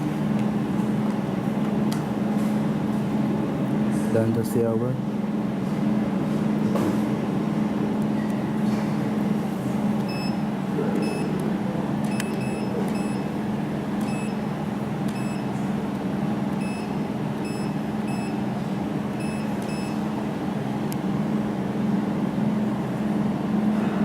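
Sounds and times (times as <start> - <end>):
welding machine low hum: 7.5 - 23.1
short high beeps: 10.1 - 10.4, 11.0 - 11.3, 12.1 - 13.3, 14.0 - 14.4, 15.1 - 15.5, 16.6 - 18.4, 19.2 - 20.0.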